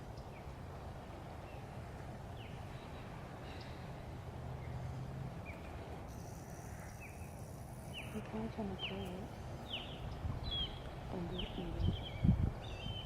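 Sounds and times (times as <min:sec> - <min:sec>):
bird chirps: 0:04.6 - 0:13.0.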